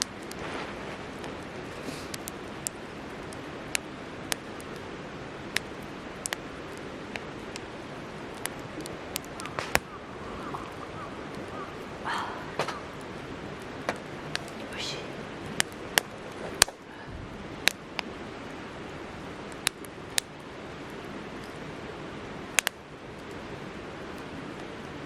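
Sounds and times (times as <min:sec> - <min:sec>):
steady rushing noise: 0:00.0 - 0:25.0
wood fire crackling and popping: 0:00.0 - 0:25.0.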